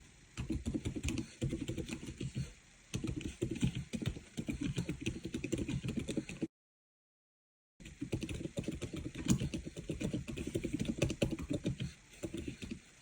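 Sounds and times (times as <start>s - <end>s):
mechanical keyboard typing: 0.4s - 2.4s, 3.0s - 6.4s, 7.8s - 12.8s.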